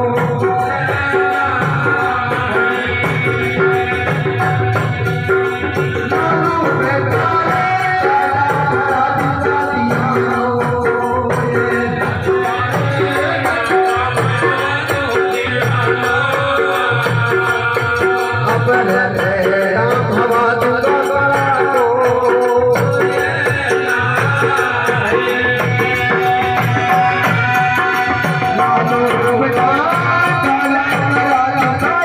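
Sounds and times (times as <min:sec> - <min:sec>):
jingling rattling percussion: 0:00.0 - 0:32.0
steady drum beat: 0:00.0 - 0:32.0.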